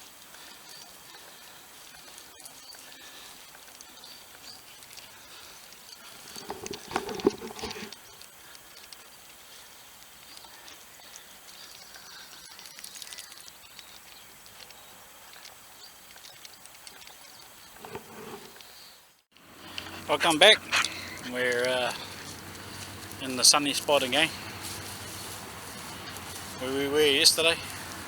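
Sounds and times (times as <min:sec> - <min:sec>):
dogs scuffling: 0:19.7 - 0:28.0.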